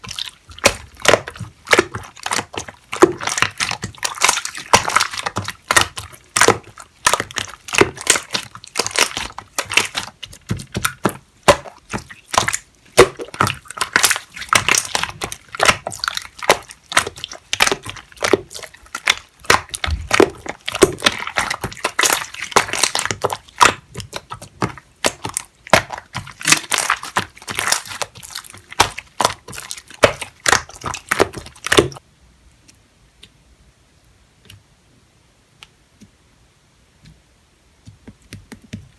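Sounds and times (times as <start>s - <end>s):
slime crackling and popping: 0.0s - 32.0s.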